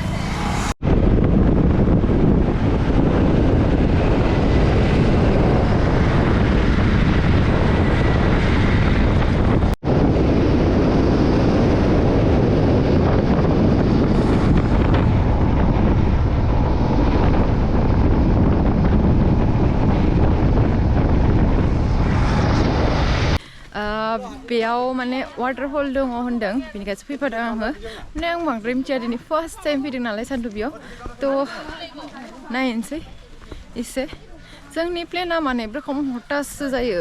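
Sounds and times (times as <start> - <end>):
motorcycle engine: 0.0 - 23.4
road noise: 0.0 - 37.0
wind rushing over microphone: 0.0 - 37.0.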